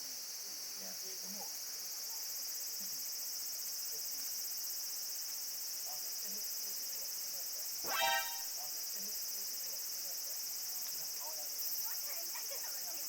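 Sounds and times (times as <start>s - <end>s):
insects chorus: 0.0s - 13.0s
faint short chirps: 7.9s - 8.4s.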